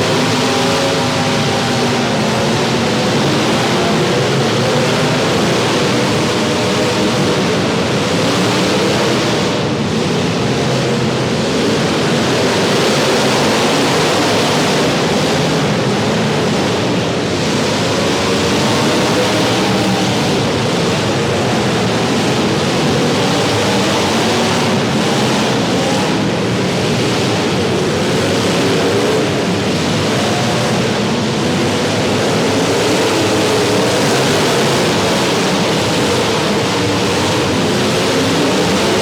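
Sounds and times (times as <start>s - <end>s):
car engines revving: 0.0s - 39.0s.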